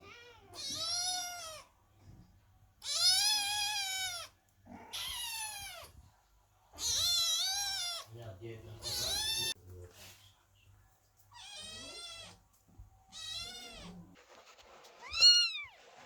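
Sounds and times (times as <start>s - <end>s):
kittens meowing: 0.0s - 1.7s, 2.8s - 6.0s, 6.7s - 8.1s, 8.8s - 9.6s, 11.3s - 12.4s, 13.1s - 14.2s, 15.0s - 15.8s.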